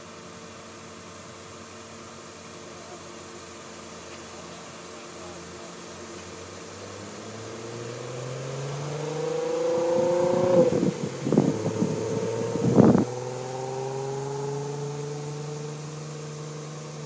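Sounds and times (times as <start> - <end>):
car engine passing by: 6.2 - 17.0.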